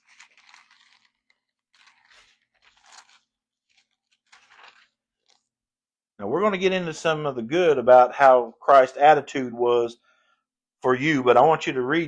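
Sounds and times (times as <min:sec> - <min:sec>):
paper pages rustling: 0:00.0 - 0:05.5.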